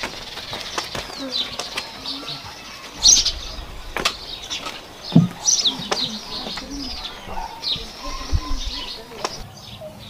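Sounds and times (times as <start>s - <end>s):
small birds chirping: 0.0s - 10.0s
sharp knocks: 4.0s - 8.4s.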